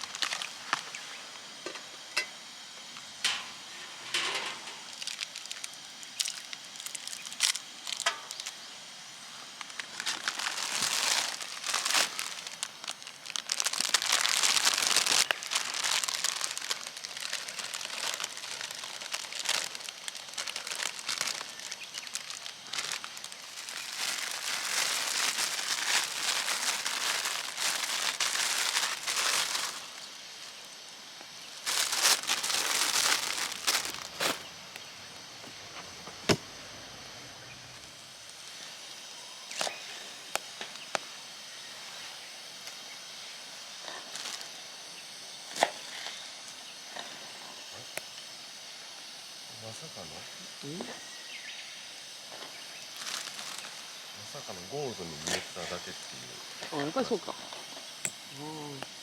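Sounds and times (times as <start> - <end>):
crinkling rustling handling noise: 0.0 - 2.3, 2.9 - 8.6, 9.5 - 30.5, 31.4 - 36.4, 43.8 - 44.6, 52.3 - 57.9.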